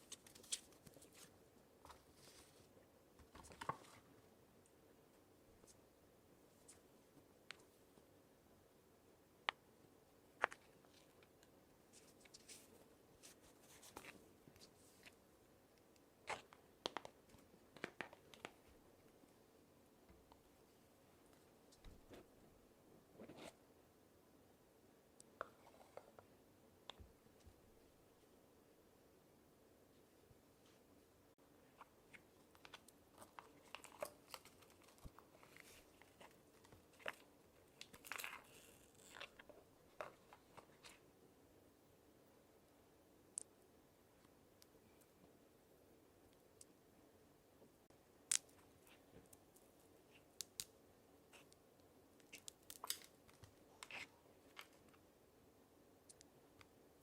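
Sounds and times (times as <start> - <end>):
paper rustling and crinkling: 0.0 - 4.0.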